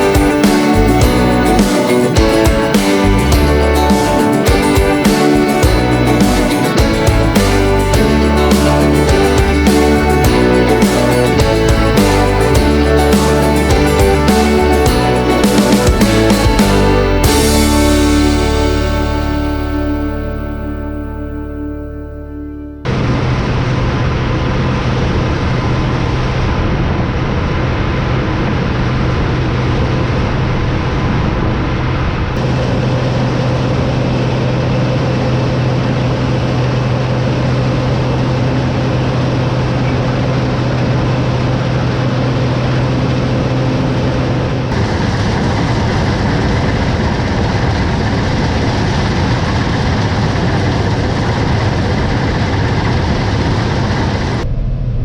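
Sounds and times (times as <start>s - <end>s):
farm machinery engine running: 0.0s - 22.0s.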